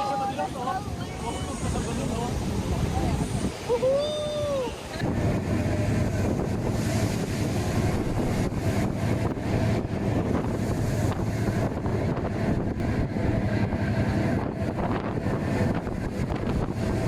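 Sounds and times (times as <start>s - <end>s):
rough sea: 0.0s - 17.0s
wind buffeting microphone: 0.0s - 17.0s
steady low hum: 4.8s - 17.0s.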